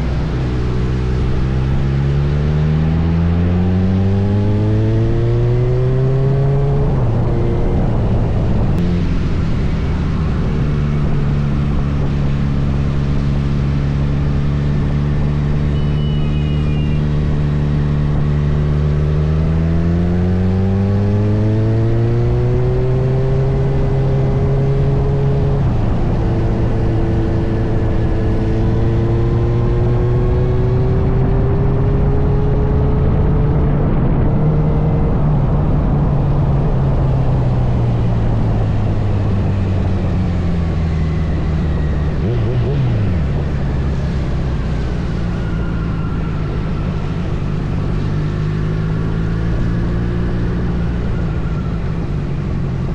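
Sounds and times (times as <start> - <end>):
motorcycle engine revving: 0.0 - 35.2, 36.8 - 52.9.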